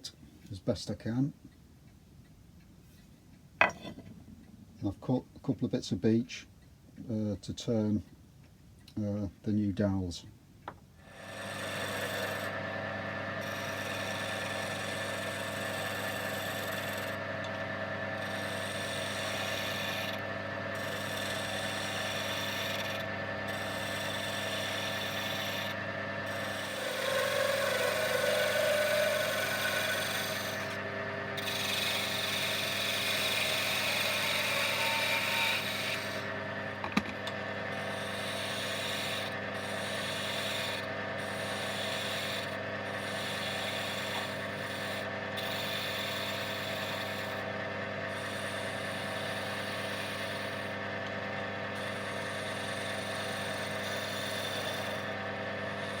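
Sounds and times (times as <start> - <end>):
cutting tool rasping on wood: 11.0 - 12.7, 13.4 - 36.4, 37.7 - 47.5, 48.1 - 56.0
wood lathe motor humming: 11.0 - 56.0.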